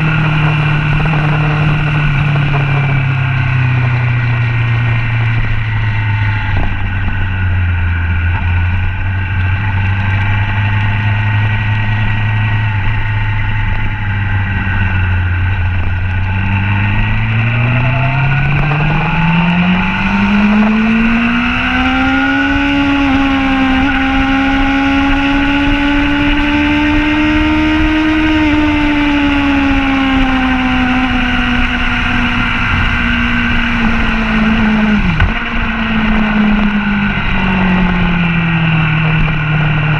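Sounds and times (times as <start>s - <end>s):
wind rush: 0.0s - 11.5s, 12.2s - 39.9s
motorcycle engine at speed: 0.0s - 39.9s.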